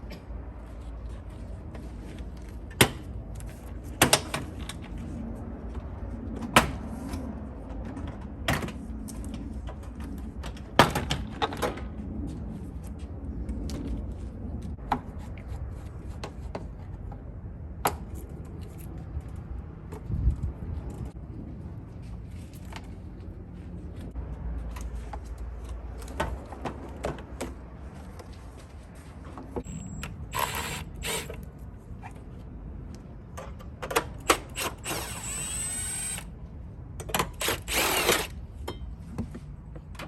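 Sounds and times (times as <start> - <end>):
steady low rumble: 4.7 - 16.2, 16.8 - 26.0.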